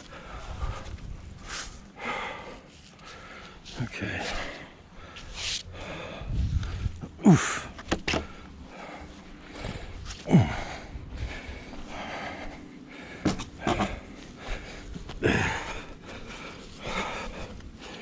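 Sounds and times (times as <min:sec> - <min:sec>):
man grunting with effort: 0:07.0 - 0:08.4, 0:10.1 - 0:10.9, 0:15.2 - 0:15.9.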